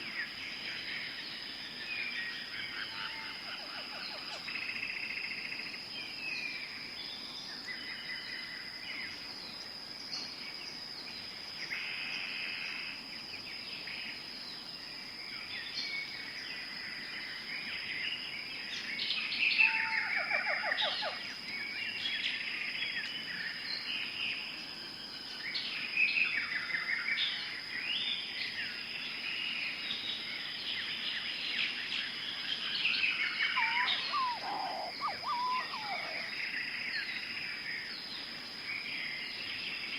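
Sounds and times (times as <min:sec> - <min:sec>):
many birds calling: 0:32.8 - 0:37.1.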